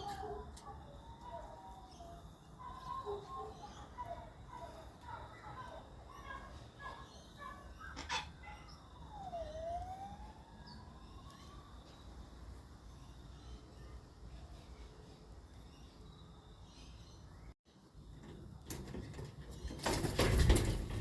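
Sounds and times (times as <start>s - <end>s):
bird chirps and calls: 0.0s - 12.1s.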